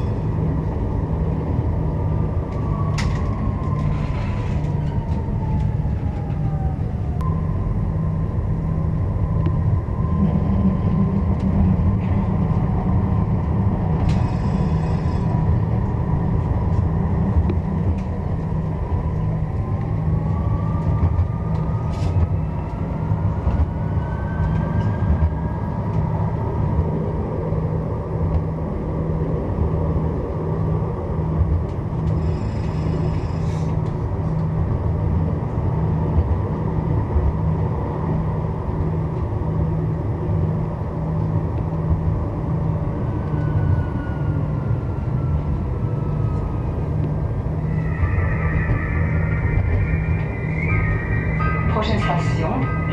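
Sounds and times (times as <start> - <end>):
tram wheels rumbling: 0.0 - 52.9
high ringing tones: 47.6 - 52.9.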